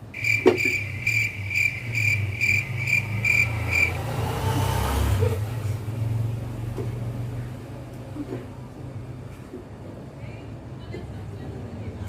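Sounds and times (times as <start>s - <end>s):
cricket chirping: 0.1s - 4.4s.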